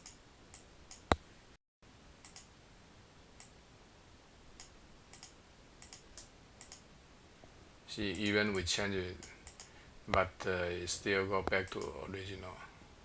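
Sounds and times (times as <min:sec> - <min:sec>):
computer mouse clicks: 0:02.2 - 0:02.5, 0:04.6 - 0:06.8, 0:09.2 - 0:10.2, 0:11.4 - 0:12.0.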